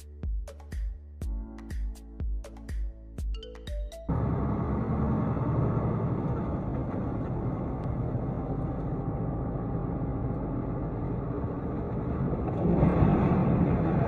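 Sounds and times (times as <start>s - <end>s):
vehicle engine and road rumble: 4.1s - 14.0s.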